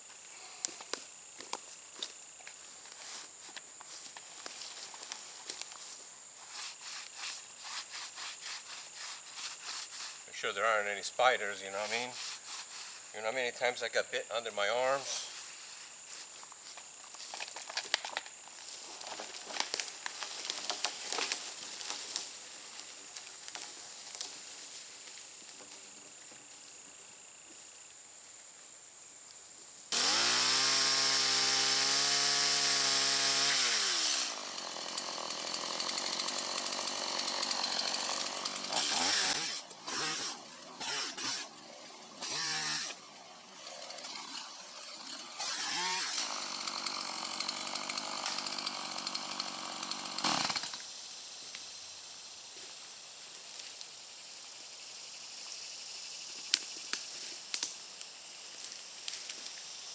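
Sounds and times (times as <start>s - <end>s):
chainsaw engine revving: 29.9s - 50.8s.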